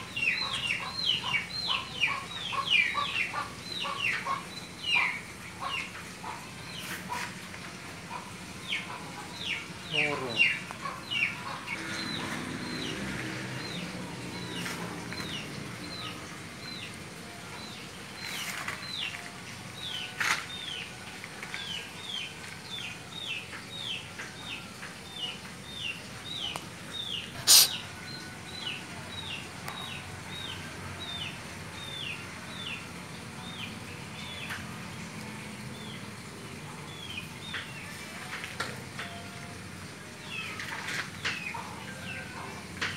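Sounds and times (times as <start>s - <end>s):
bird chirping: 22.0s - 30.6s.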